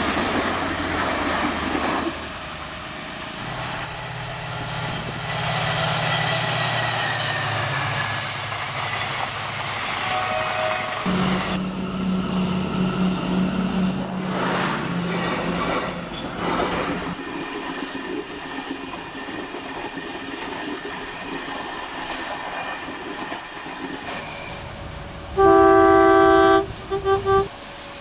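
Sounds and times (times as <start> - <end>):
train running on rails: 0.0 - 28.0
train horn: 10.0 - 13.4, 25.3 - 27.6.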